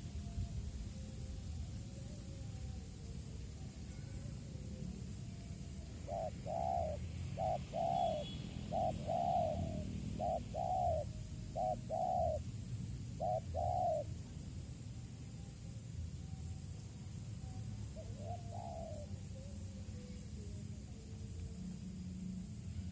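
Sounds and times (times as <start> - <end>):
dove cooing: 4.9 - 14.3, 17.8 - 20.9.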